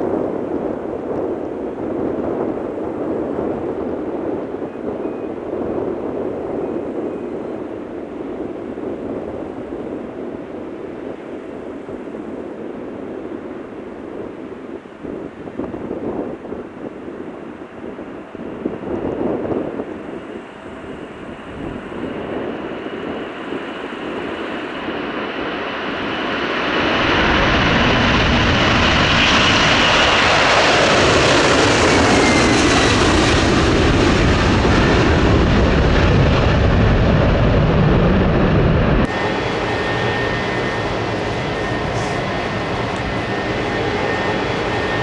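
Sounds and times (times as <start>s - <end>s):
airliner engines passing: 0.0s - 45.0s.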